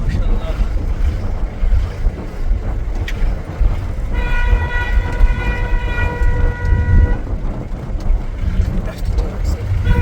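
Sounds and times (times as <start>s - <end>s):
low rumble: 0.0s - 10.0s
vehicle horn long note: 4.1s - 7.3s, 9.8s - 10.0s.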